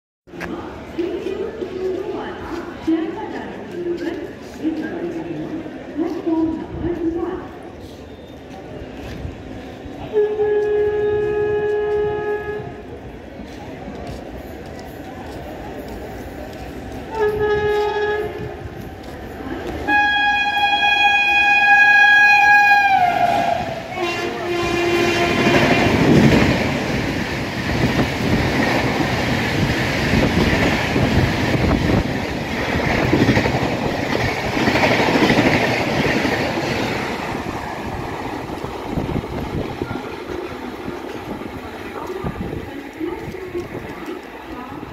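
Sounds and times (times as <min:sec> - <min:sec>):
train coaches rushing past: 0:00.3 - 0:44.9
train horn: 0:10.0 - 0:12.8, 0:17.1 - 0:18.6, 0:19.8 - 0:26.2.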